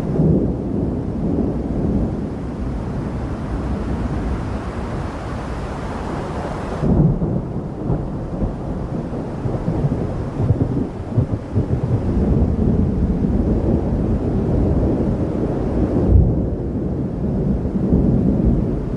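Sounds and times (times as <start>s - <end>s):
rain hiss: 0.0s - 16.4s
thunder rumbling: 0.0s - 18.9s.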